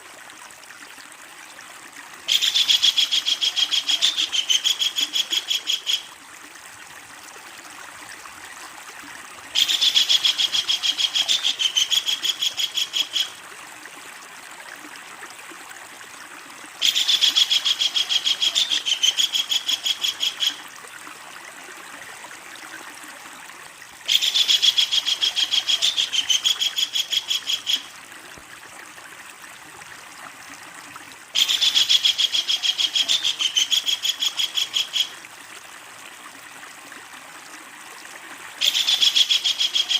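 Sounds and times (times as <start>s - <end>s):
kingfisher rattling call: 24.1s - 27.9s, 31.4s - 35.1s, 38.6s - 39.9s.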